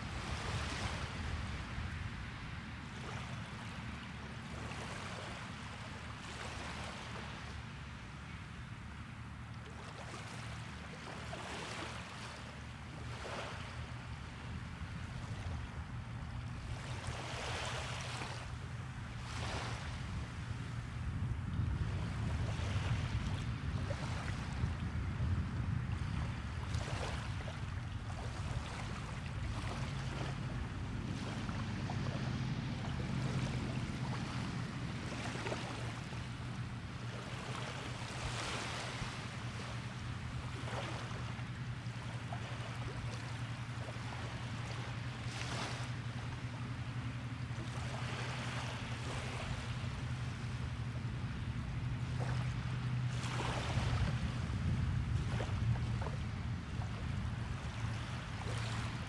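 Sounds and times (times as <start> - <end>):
small waves splashing on shore: 0.0 - 59.0
steady low rumble: 28.0 - 37.4, 53.7 - 59.0.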